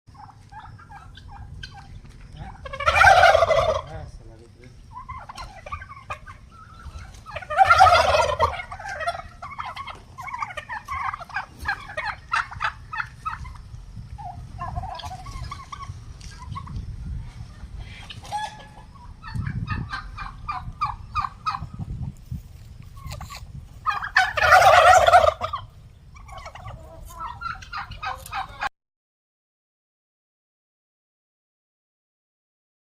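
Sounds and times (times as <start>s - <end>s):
turkey calls and clucks: 0.1s - 28.7s
turkeys gobbling: 0.1s - 28.7s.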